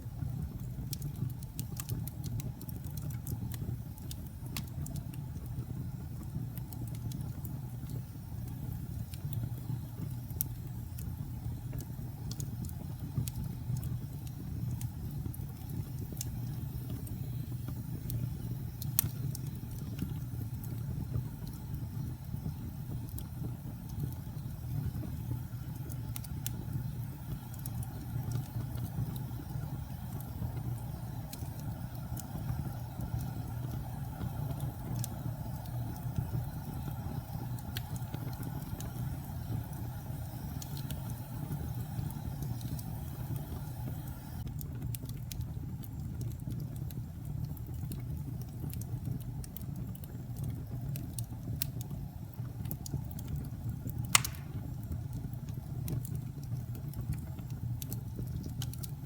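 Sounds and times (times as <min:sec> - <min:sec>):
fire crackling in fireplace: 0:00.0 - 0:59.0
loud wood pop: 0:54.2 - 0:54.6.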